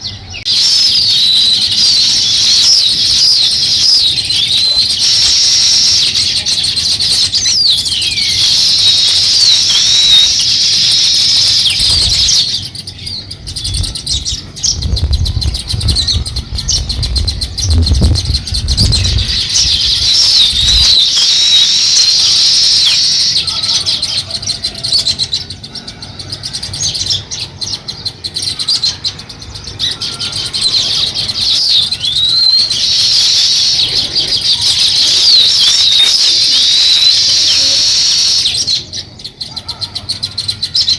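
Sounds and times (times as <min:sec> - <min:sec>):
songbirds chirping: 0:00.0 - 0:40.9
low rumble: 0:13.4 - 0:21.0.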